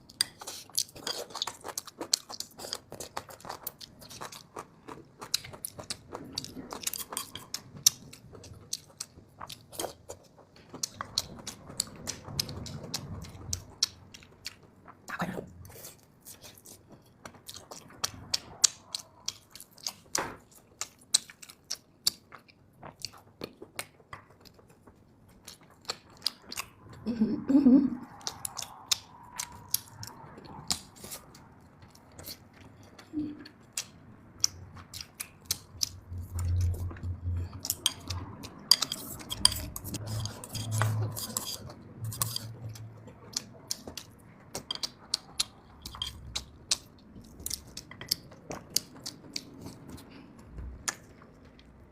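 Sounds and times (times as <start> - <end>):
chewing and biting meat: 28.1 - 32.8.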